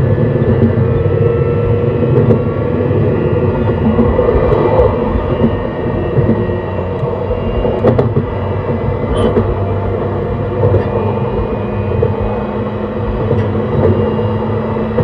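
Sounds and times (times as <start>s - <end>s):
train wheels rumbling on rail: 0.0s - 15.0s
steady tones: 1.3s - 15.0s.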